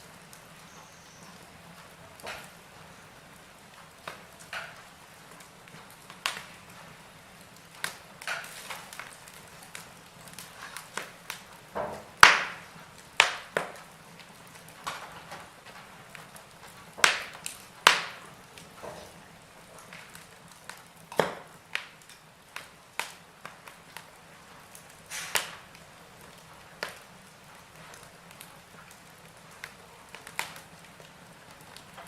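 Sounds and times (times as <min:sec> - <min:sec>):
wood fire crackling and popping: 0:00.0 - 0:32.0.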